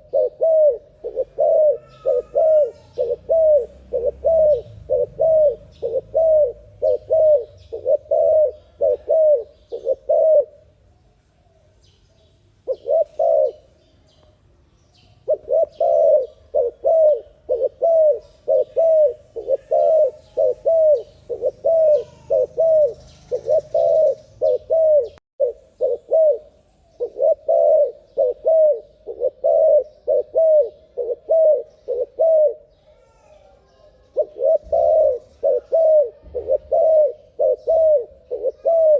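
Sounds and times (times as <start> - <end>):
dove cooing: 0.0 - 10.7, 12.6 - 13.8, 15.2 - 38.9
faint small bird chirps: 10.9 - 38.9.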